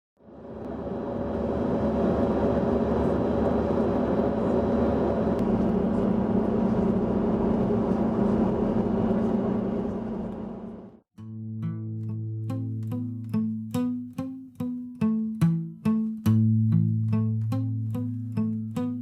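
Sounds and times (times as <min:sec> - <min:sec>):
vehicle engine droning: 0:00.2 - 0:11.0.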